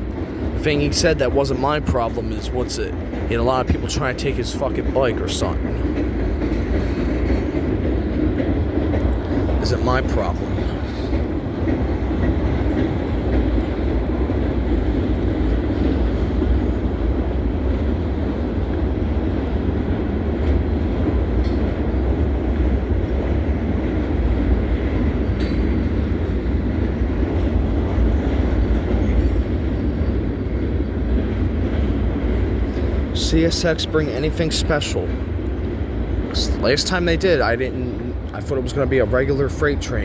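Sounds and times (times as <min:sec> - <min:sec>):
freight train rumbling past: 0:00.0 - 0:40.0.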